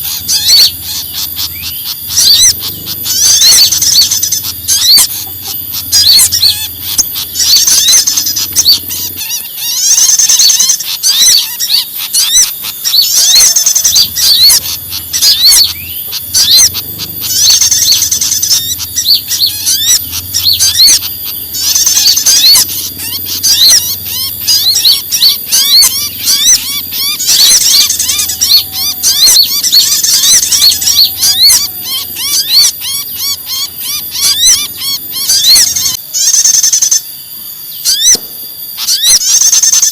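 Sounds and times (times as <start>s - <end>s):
high bird trilling: 0.0s - 39.9s
songbirds chirping and whistling: 0.0s - 39.9s.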